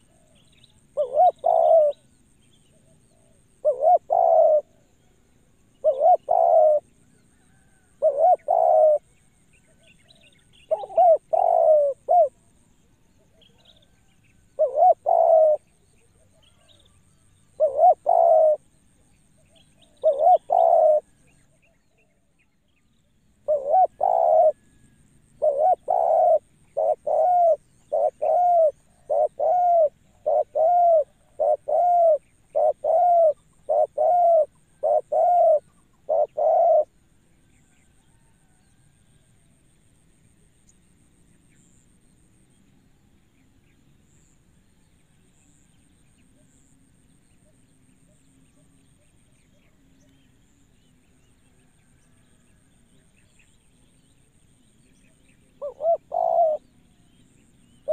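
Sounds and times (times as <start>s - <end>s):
dove cooing: 0.0s - 2.1s, 2.7s - 4.9s, 5.8s - 9.1s, 9.7s - 12.4s, 14.6s - 16.8s, 17.5s - 18.7s, 19.4s - 21.3s, 23.4s - 37.0s, 55.6s - 57.1s.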